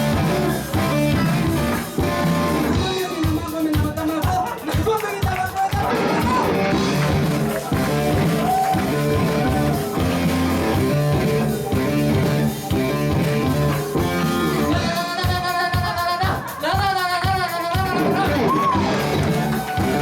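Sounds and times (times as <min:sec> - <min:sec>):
live rock band playing: 0:00.0 - 0:20.0
person singing: 0:00.0 - 0:20.0.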